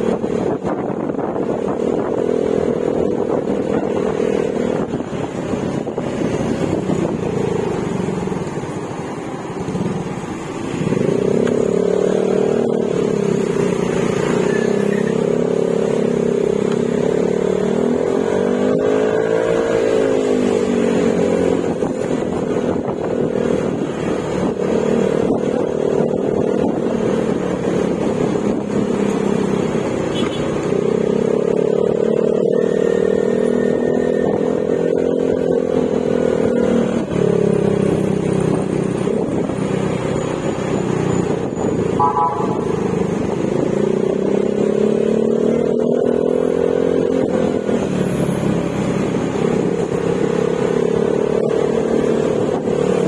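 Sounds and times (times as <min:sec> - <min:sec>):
scooter engine running: 0:03.5 - 0:14.8, 0:36.4 - 0:53.0.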